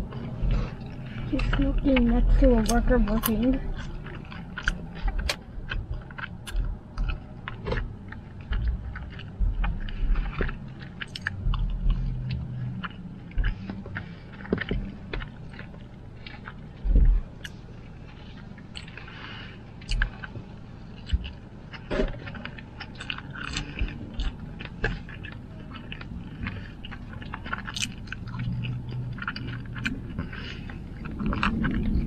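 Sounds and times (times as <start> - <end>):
chewing fries: 0.0 - 32.0
low rumble inside a car: 0.0 - 32.0
wet mouth clicks and smacks: 2.6 - 14.0, 19.8 - 20.3, 21.0 - 30.4.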